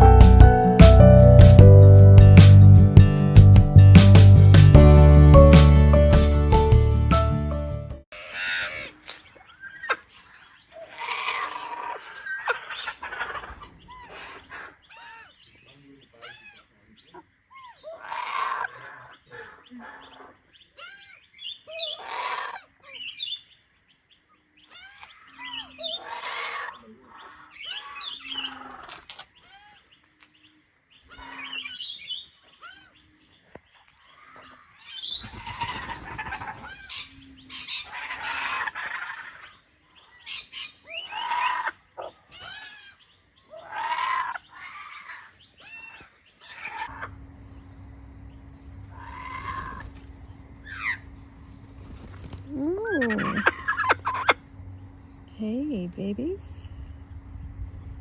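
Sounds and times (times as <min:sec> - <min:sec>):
birds chirping: 0:44.4 - 0:58.0
harsh bird call: 0:48.3 - 0:51.1.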